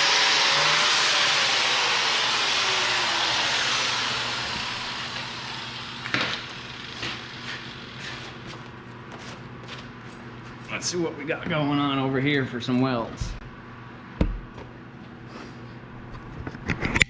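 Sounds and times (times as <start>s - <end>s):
power tool winding down: 0.0s - 8.5s.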